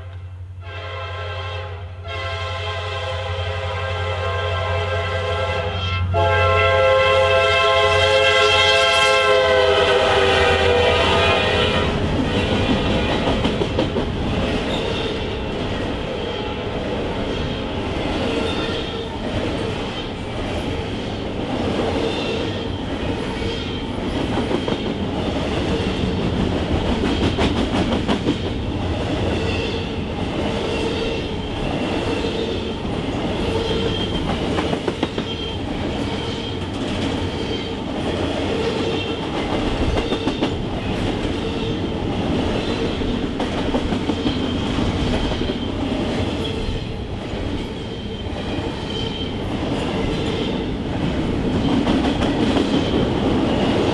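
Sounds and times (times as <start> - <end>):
train wheels clicking over rail joints: 11.8 - 53.9.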